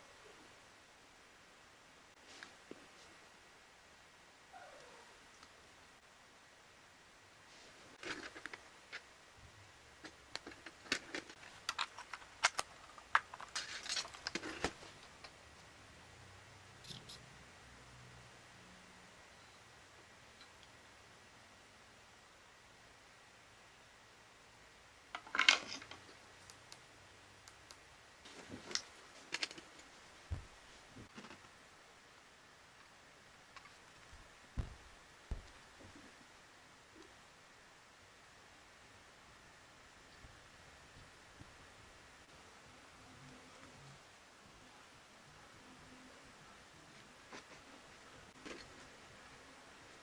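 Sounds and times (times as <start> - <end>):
small hard parts clicking: 10.0 - 14.8, 33.6 - 35.9
rustling: 29.5 - 31.6, 33.6 - 36.2
soft low thump: 30.3 - 31.1, 34.2 - 35.9.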